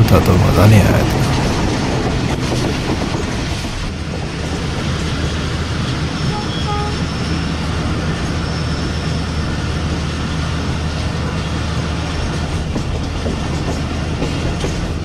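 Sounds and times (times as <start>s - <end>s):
train rumbling on track: 0.0s - 15.0s
wheels clicking over rail joints: 12.1s - 15.0s.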